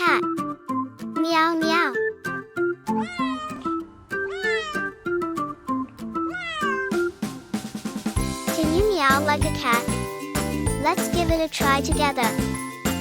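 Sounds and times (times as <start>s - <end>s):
light children's music: 0.0s - 13.0s
cat meowing: 2.9s - 5.0s, 6.3s - 7.0s.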